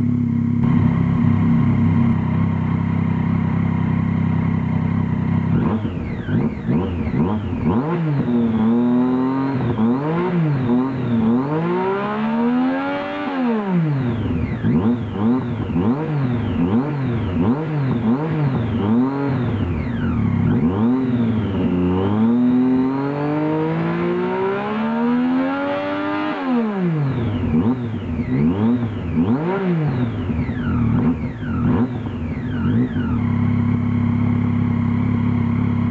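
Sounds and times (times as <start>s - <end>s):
motorcycle engine idling: 0.0s - 8.8s, 14.0s - 22.4s, 30.0s - 35.9s
motorcycle engine revving: 0.0s - 35.9s.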